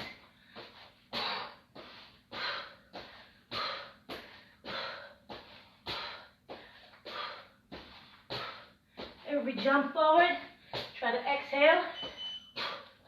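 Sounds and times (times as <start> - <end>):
person breathing hard: 0.0 - 9.2, 12.5 - 13.0.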